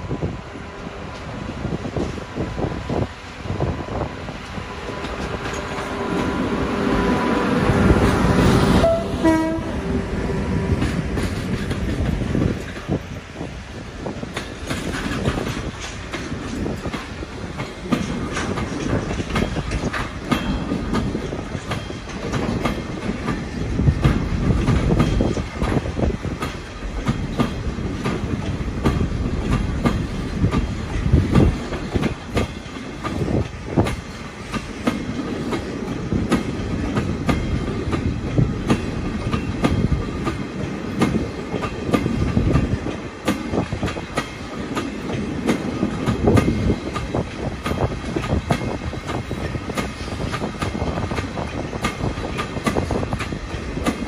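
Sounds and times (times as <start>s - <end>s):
freight train wheels clacking: 0.0s - 54.0s.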